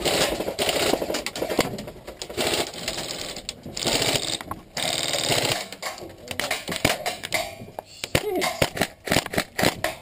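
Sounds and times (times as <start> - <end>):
airsoft guns firing full-auto: 3.8 - 5.8, 8.6 - 10.0.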